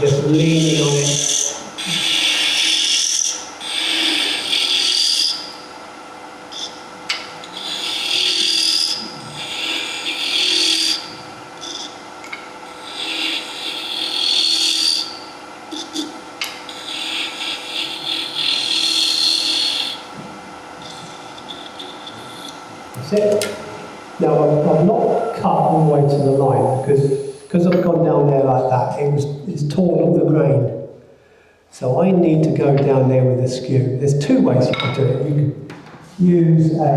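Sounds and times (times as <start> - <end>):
lathe tool cutting wood: 0.0 - 27.9
faint lathe hum: 0.0 - 36.9.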